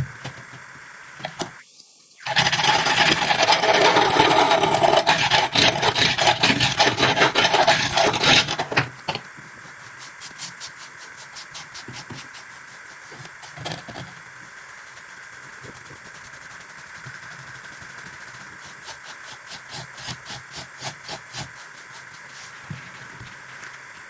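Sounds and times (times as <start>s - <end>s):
abrasive rubbing on steel blade: 9.6s - 13.6s, 14.5s - 22.6s.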